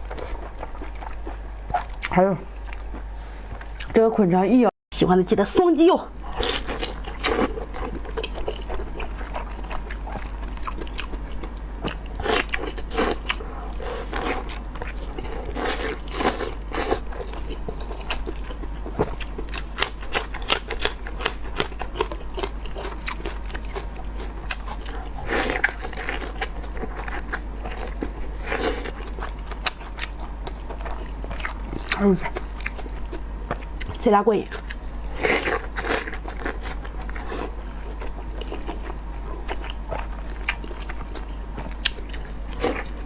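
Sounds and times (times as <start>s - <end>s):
biting and chewing: 6.3s - 34.0s.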